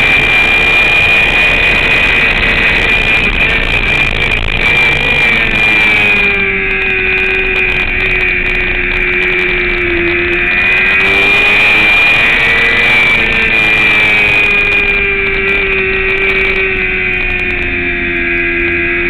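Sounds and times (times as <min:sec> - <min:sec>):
motorcycle engine at high revs: 0:00.0 - 0:19.0
wind noise: 0:00.0 - 0:19.0.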